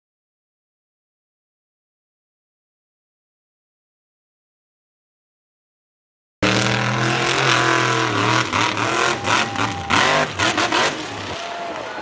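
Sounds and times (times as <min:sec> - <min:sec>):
truck engine revving hard: 0:06.4 - 0:12.0.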